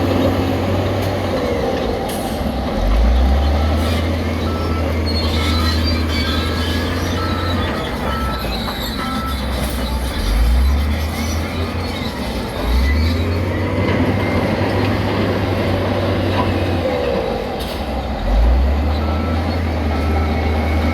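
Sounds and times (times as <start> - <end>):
diesel engine rumbling: 0.0 - 20.9
reversing alarm beeping: 3.6 - 10.8, 18.9 - 20.9
metallic squealing and clanking: 3.6 - 14.4.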